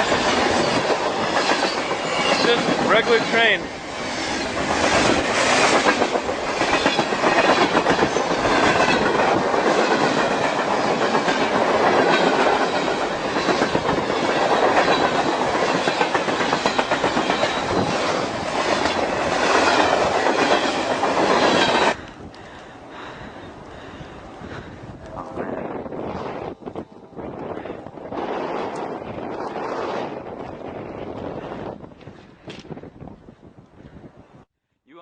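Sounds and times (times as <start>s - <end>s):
freight train wheels clattering: 0.0s - 25.0s.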